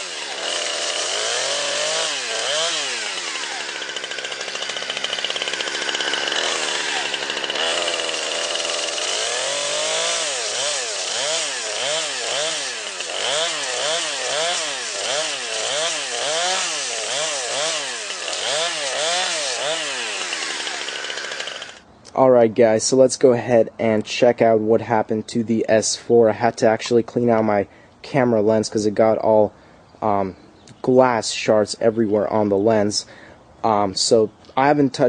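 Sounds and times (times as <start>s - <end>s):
chainsaw engine revving: 0.0s - 21.9s.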